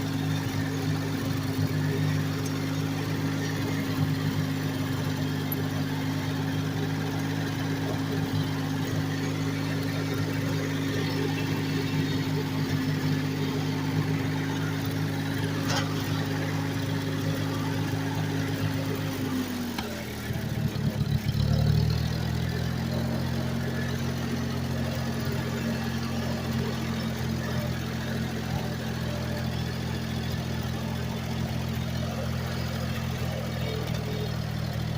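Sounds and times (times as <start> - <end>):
tractor engine running: 0.0 - 34.9.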